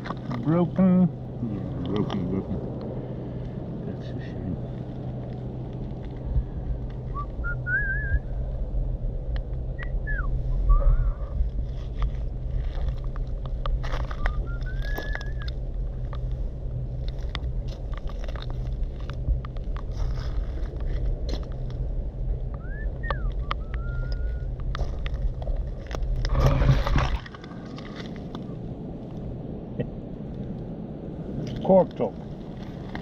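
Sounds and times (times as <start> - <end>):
steady low hum: 0.0 - 33.0
rising whistled notes: 7.1 - 8.3, 9.8 - 11.0, 14.2 - 15.5, 22.6 - 24.5.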